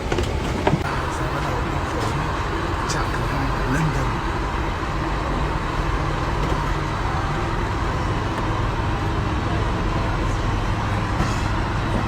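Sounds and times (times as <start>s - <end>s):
air-conditioning noise: 0.0s - 12.0s
airliner engine noise: 0.0s - 12.0s.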